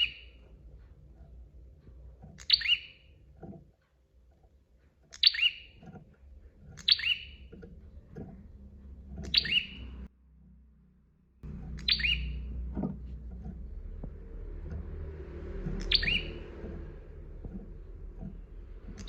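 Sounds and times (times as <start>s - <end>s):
low background rumble: 0.0s - 19.0s
bird calling sharply: 11.8s - 12.4s.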